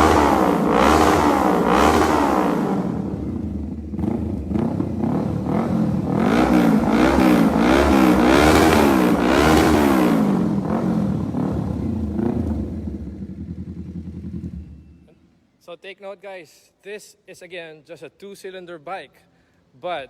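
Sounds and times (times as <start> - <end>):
motorcycle engine revving: 0.0 - 15.2.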